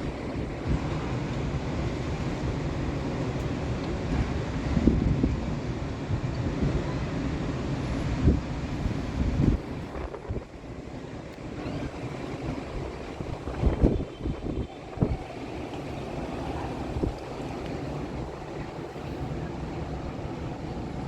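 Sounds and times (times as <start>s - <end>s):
heavy rain: 0.0s - 21.0s
storm wind: 0.0s - 21.0s
wind thumping on microphone: 4.0s - 6.8s, 8.1s - 10.6s, 12.5s - 16.0s.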